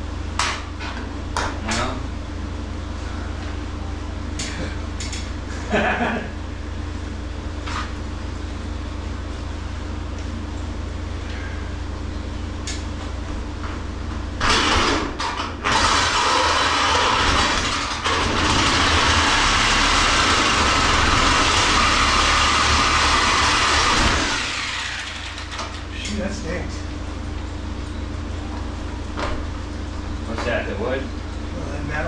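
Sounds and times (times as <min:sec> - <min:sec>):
angle grinder cutting metal: 0:15.6 - 0:25.8.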